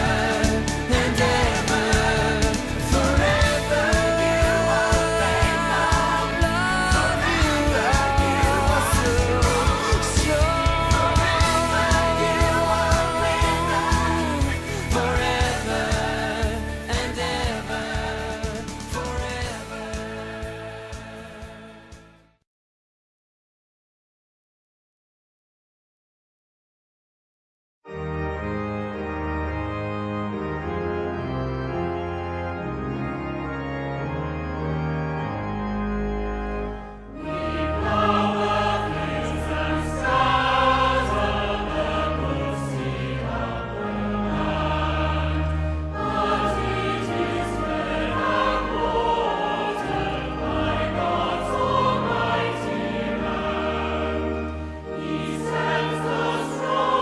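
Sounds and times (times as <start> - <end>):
choir singing: 0.0 - 21.9, 37.1 - 57.0
held keyboard chords: 0.0 - 22.2, 27.9 - 57.0.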